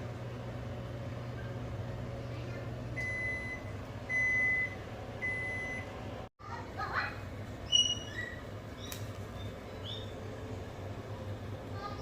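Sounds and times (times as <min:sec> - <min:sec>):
steady low hum: 0:00.0 - 0:12.0
kitchen timer beeping: 0:03.0 - 0:05.9.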